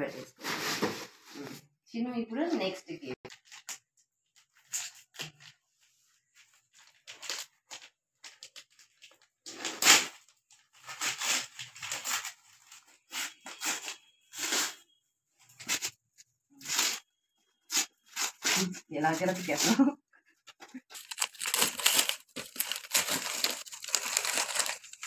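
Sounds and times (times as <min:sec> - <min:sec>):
wrapping paper tearing and crinkling: 0:03.3 - 0:03.8, 0:04.4 - 0:05.6, 0:06.2 - 0:14.9, 0:16.6 - 0:17.1, 0:17.7 - 0:19.8, 0:20.8 - 0:25.0.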